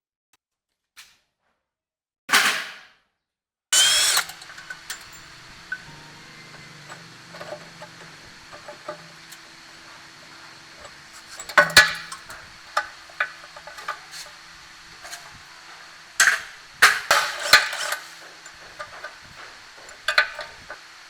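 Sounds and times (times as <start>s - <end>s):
metal tools clinking and knocking: 3.8s - 20.8s.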